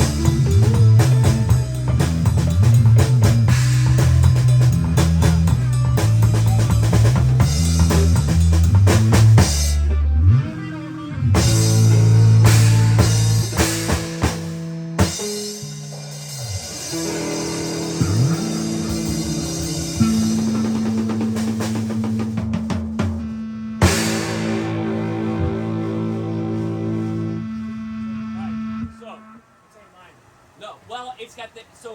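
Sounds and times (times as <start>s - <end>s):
drum kit: 0.0s - 27.5s
bass line: 0.0s - 29.4s
guitar: 0.0s - 29.6s.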